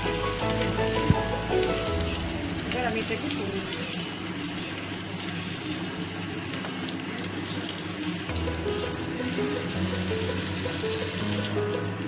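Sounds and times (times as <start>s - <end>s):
background music: 0.0s - 3.7s, 8.3s - 12.0s
food sizzling in hot oil: 0.0s - 12.0s.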